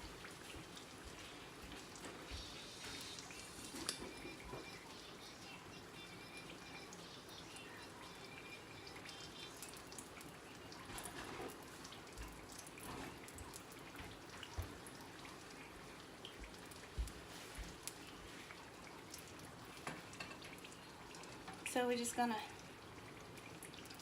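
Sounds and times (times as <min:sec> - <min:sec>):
food sizzling in hot oil: 0:01.7 - 0:12.2, 0:17.2 - 0:23.0.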